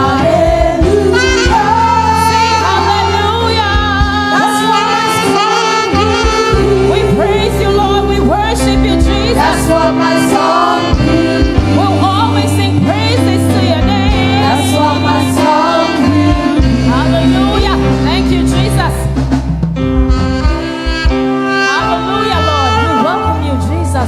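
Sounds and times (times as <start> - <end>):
group singing worship song: 0.0 - 17.9
live band playing: 0.0 - 24.0.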